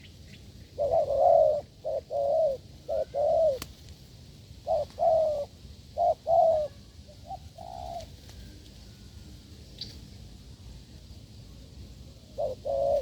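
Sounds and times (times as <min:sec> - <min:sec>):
dove cooing: 0:00.0 - 0:03.8, 0:04.6 - 0:09.1, 0:12.1 - 0:13.0.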